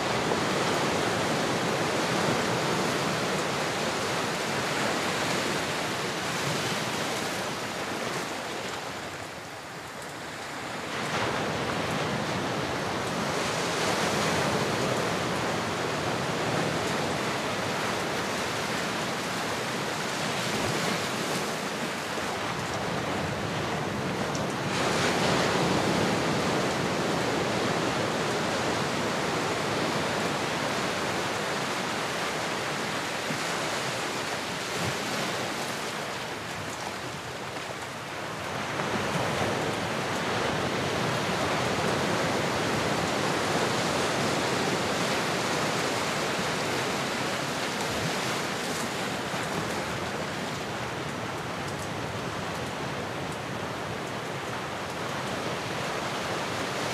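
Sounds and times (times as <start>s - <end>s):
ocean waves washing: 0.0s - 56.9s.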